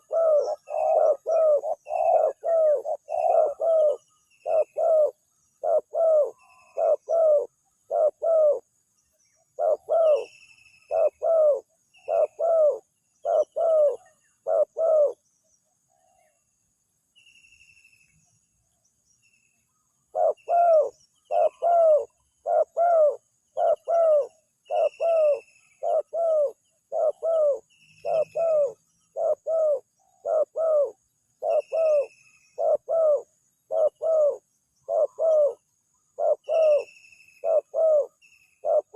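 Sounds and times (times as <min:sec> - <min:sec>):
dove cooing: 0:00.0 - 0:08.7, 0:09.4 - 0:15.2, 0:20.1 - 0:38.9
small birds chirping faintly: 0:00.0 - 0:38.9.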